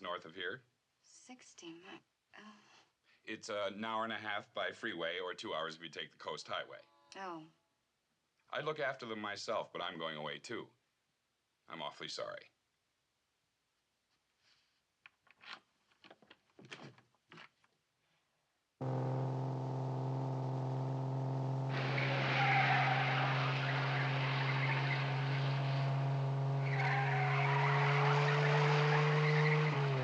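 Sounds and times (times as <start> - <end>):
car engine running: 18.8 - 30.0
hissing tyre road noise: 18.8 - 30.0.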